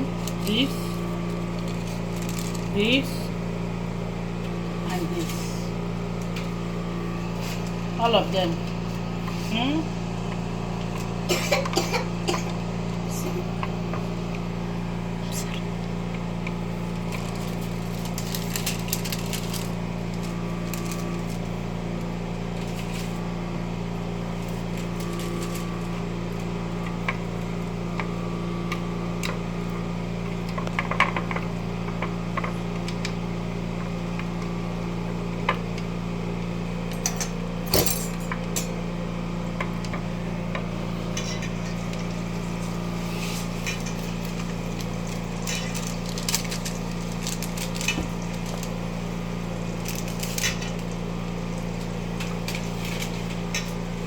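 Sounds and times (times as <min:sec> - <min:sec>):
steady low hum: 0:00.0 - 0:54.0
kitchen utensils clinking: 0:41.1 - 0:42.1, 0:45.0 - 0:48.5.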